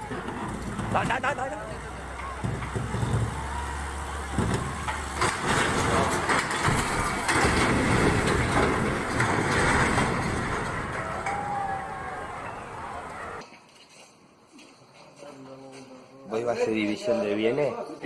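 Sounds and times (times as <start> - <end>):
heavy vehicle humming: 0.0 - 13.4
rough rumble with knocks: 0.0 - 13.4.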